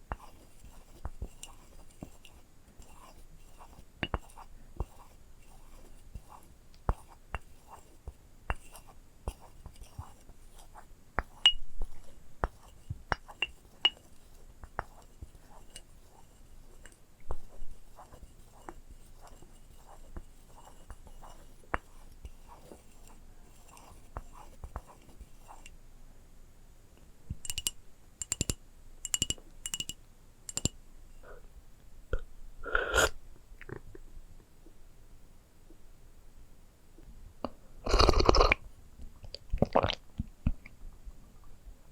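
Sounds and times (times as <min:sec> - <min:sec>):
scratchy rustle: 0:00.1 - 0:25.7.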